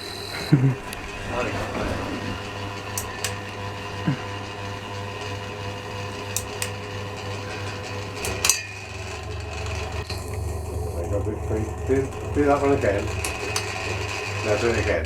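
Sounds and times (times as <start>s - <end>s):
fan switch clicks: 0.0s - 8.8s, 12.2s - 14.0s
ceiling fan motor humming: 0.0s - 15.0s.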